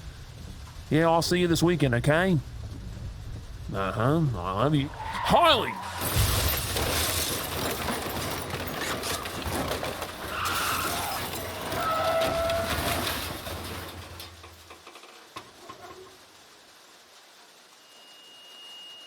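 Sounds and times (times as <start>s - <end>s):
metal crunching and scraping: 4.6s - 15.0s
glass shattering: 5.8s - 14.6s.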